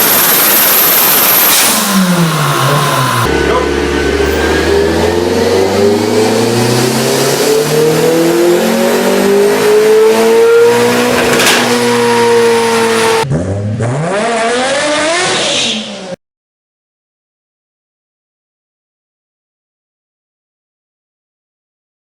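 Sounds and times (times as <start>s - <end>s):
car engine pulling hard: 0.0s - 16.1s
car engine revving: 0.0s - 16.2s.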